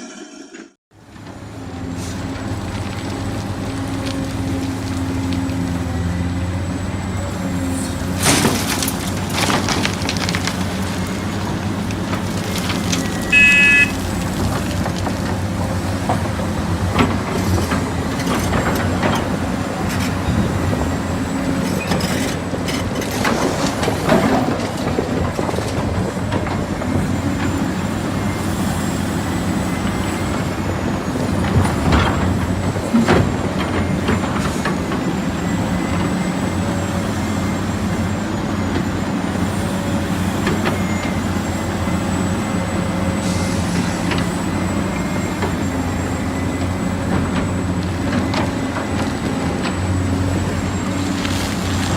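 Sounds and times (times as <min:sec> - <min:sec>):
heavy diesel machinery running: 0:00.0 - 0:51.9
horn toot: 0:13.3 - 0:14.0.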